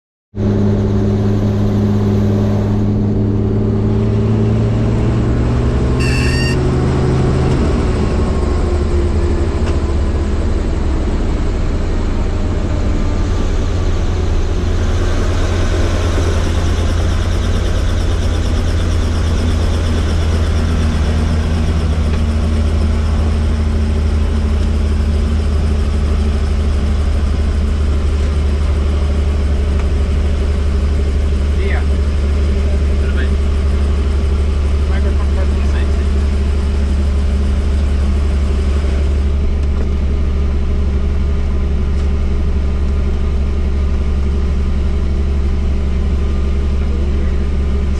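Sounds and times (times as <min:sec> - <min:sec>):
helicopter drone: 0:00.4 - 0:47.9
electronic beep: 0:06.0 - 0:06.7.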